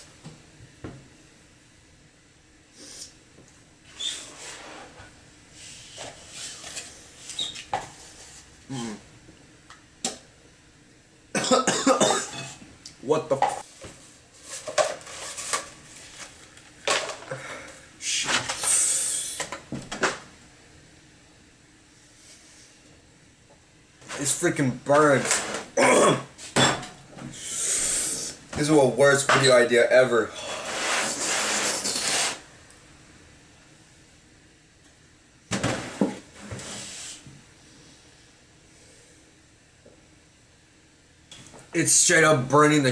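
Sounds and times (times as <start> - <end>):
person hissing breath through mouth: 2.8 - 3.2, 18.6 - 19.5, 27.4 - 28.4.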